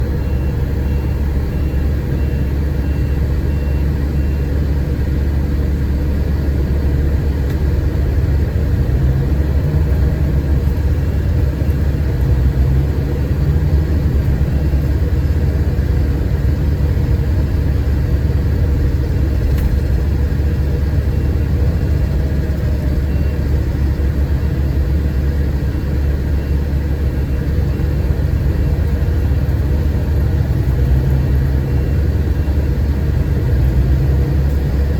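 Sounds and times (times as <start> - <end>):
diesel coach engine humming: 0.0 - 34.9.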